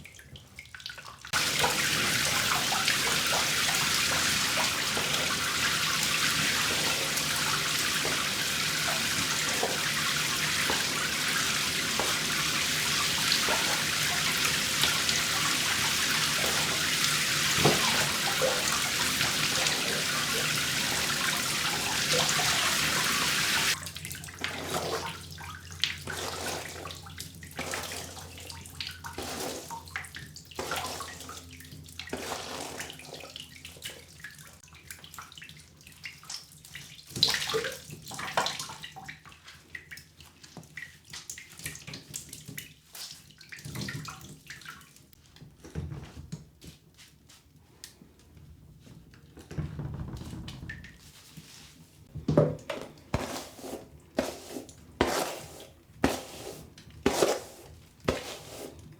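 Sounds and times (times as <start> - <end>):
tap water running: 1.4 - 31.3, 52.3 - 58.9.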